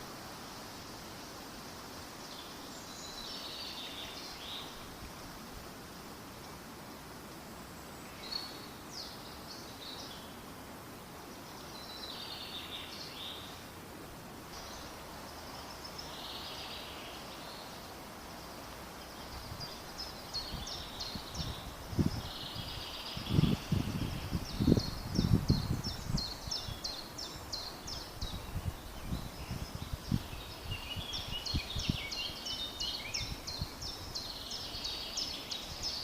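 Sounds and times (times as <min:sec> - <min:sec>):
birds chirping and trilling: 0:14.6 - 0:36.0.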